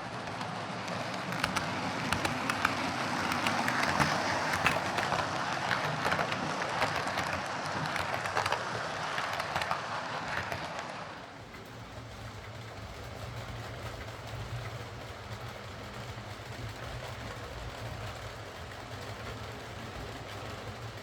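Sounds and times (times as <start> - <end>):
model train motor whirring: 0.0 - 11.4
wheels clicking over rail joints: 0.0 - 21.0.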